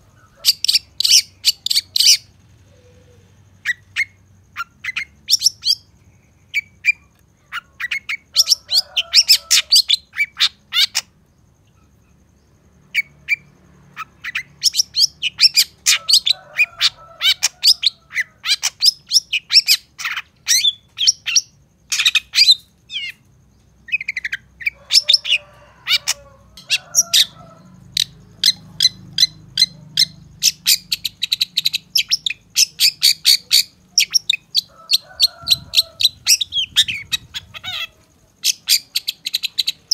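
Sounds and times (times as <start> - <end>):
shrike singing: 13.0 - 39.9.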